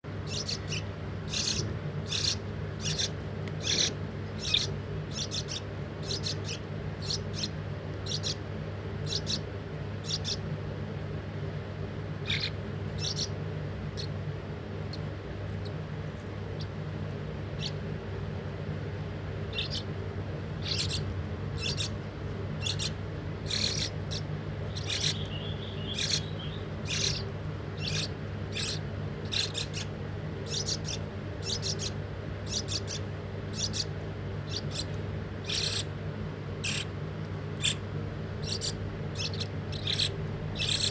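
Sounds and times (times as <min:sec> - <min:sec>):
steady low hum: 0:00.0 - 0:40.9
young birds chirping: 0:00.1 - 0:11.1, 0:12.0 - 0:40.9.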